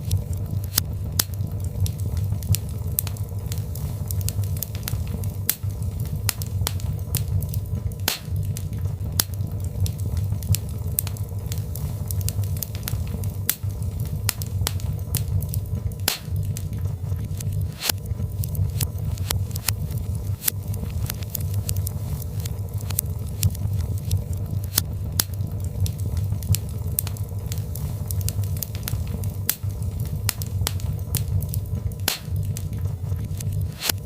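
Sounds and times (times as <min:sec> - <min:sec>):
fire crackling and popping: 0:00.0 - 0:34.0
low rumble of fire: 0:00.0 - 0:34.0.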